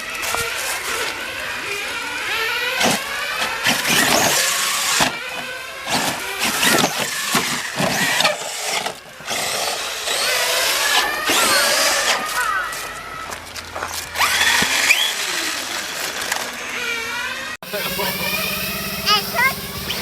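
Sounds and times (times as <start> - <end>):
electric motor whine: 0.0 - 20.0.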